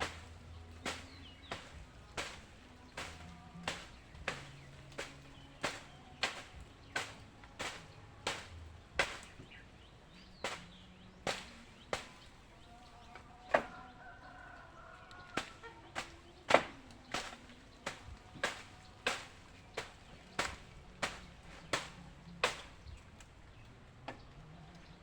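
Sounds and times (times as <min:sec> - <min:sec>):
hand tool striking: 0:00.0 - 0:09.6, 0:10.4 - 0:10.7, 0:11.3 - 0:12.4, 0:15.4 - 0:22.8.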